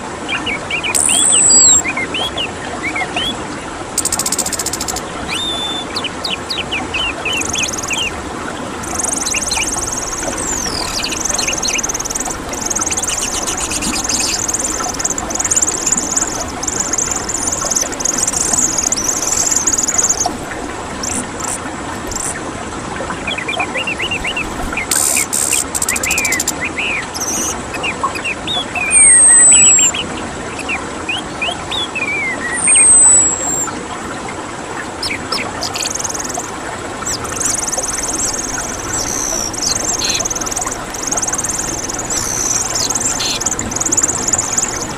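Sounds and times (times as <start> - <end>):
thrush high chattering song: 8.8 - 22.4.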